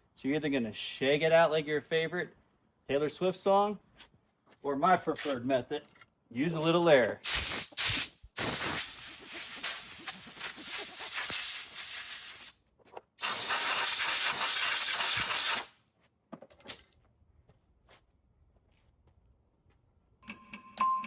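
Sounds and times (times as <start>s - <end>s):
air blow gun hissing: 7.2s - 12.5s, 13.2s - 15.8s.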